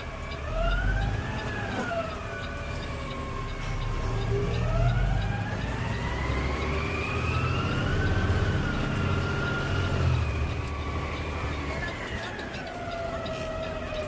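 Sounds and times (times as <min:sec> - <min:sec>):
emergency siren wailing: 0:00.0 - 0:14.0
garbage truck engine rumbling: 0:00.0 - 0:14.0.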